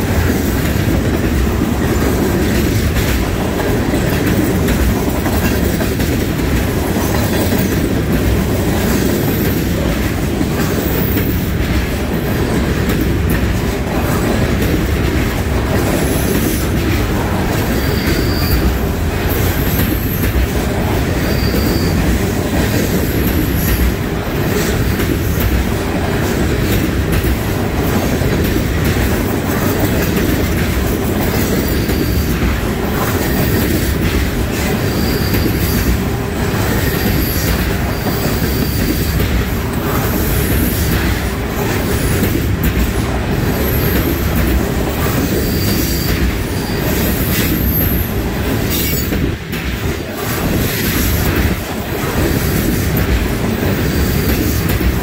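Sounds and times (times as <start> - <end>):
freight train rumbling past: 0.0 - 55.0
wheel squeals: 17.6 - 20.4, 21.1 - 22.3, 34.7 - 36.0.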